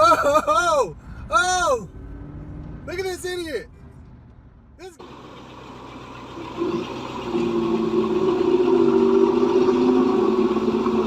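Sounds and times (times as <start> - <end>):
vehicle engine running: 5.0 - 11.0.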